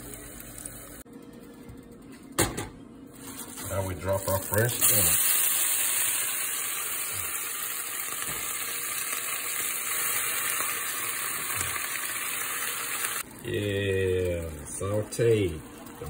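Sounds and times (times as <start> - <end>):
spinach sizzling in hot oil: 3.3 - 16.0.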